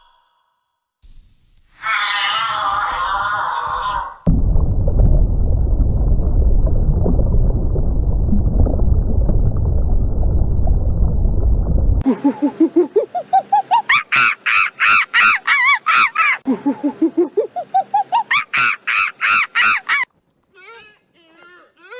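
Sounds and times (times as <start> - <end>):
monkey-like hooting cries: 1.8 - 4.2, 12.1 - 20.1
deep underwater rumble: 4.3 - 12.0.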